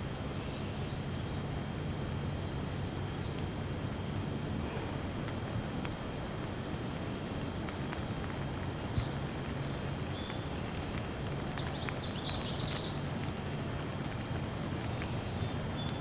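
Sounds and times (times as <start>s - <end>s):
steady rain falling: 0.0s - 16.0s
water drips ticking: 5.2s - 16.0s
bird chirping: 8.3s - 13.2s.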